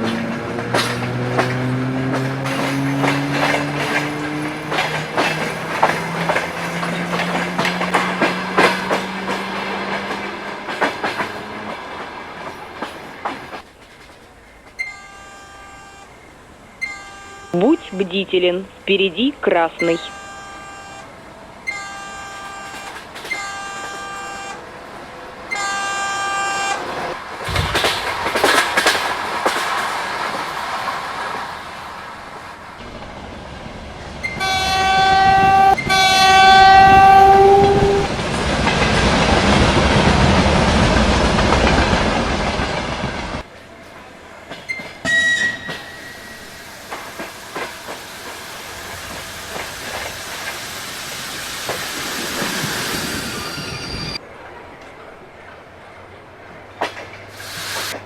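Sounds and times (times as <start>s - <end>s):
train wheels running past: 0.0s - 58.0s
train horn blasts: 14.8s - 18.8s, 19.7s - 27.2s, 34.2s - 38.2s, 45.0s - 50.6s.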